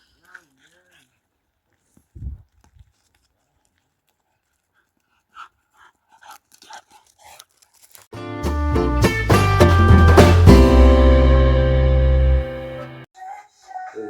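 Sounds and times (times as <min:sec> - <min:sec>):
music with guitar and drums: 0:08.2 - 0:13.0
dog whimpering and panting: 0:13.2 - 0:14.0.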